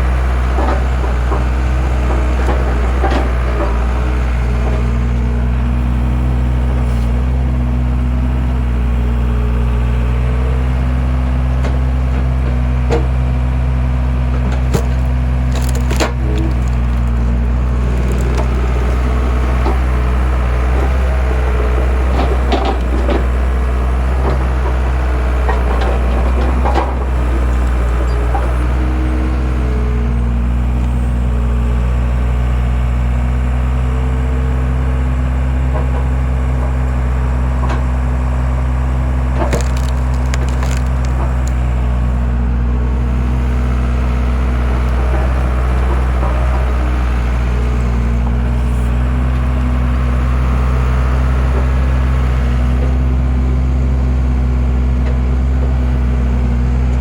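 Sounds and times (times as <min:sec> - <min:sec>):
skid steer engine running: 0:00.0 - 0:57.0
wood cracking and splitting: 0:11.6 - 0:29.1, 0:37.8 - 0:42.2.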